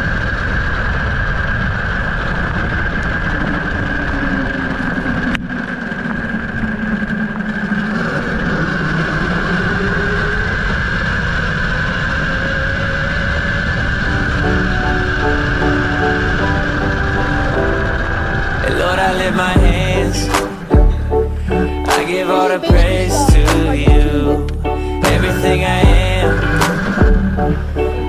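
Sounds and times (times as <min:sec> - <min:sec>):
whine changing pitch: 0:00.0 - 0:28.0.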